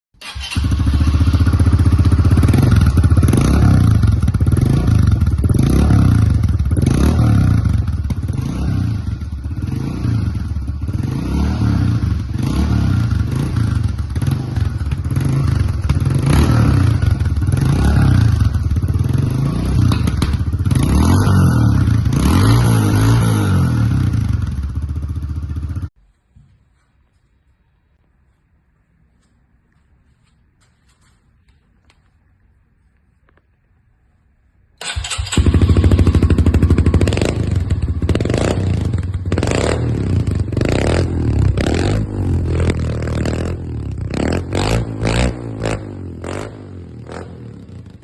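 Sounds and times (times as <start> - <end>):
dirt bike engine revving: 0.2 - 25.9, 34.8 - 47.4.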